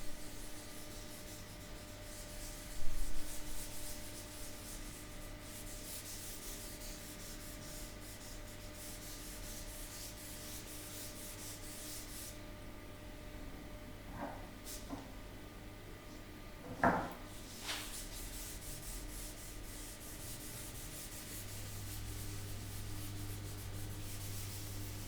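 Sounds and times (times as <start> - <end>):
sandpaper rubbing wood: 0.2 - 12.4, 17.4 - 25.0
dull knock: 16.7 - 17.2.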